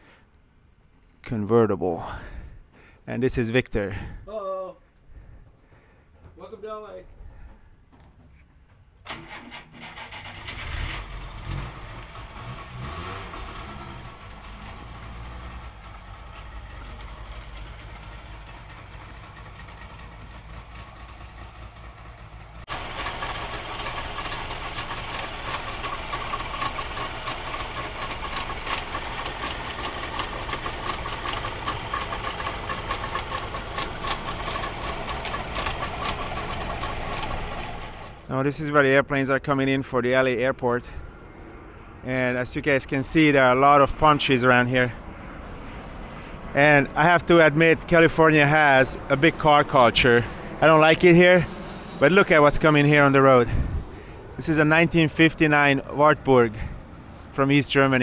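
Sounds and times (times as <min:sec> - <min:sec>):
two-stroke engine starting and revving: 0:09.1 - 0:38.3.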